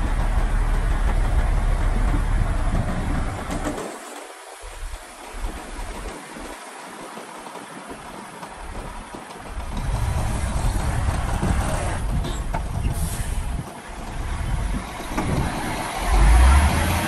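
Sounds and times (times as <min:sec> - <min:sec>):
heavy diesel engine rumbling: 0:00.0 - 0:03.8, 0:08.6 - 0:17.0.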